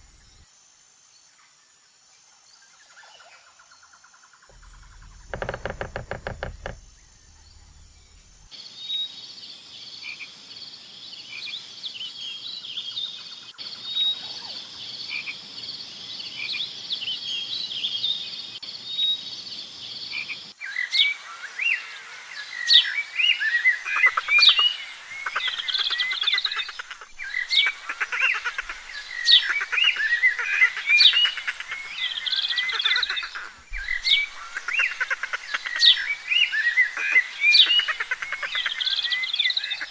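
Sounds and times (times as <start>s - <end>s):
birds chirping: 0.0s - 0.4s, 4.5s - 8.5s, 22.5s - 39.9s
frog croaking: 0.0s - 0.4s, 4.5s - 8.5s, 23.9s - 36.2s, 36.9s - 39.9s.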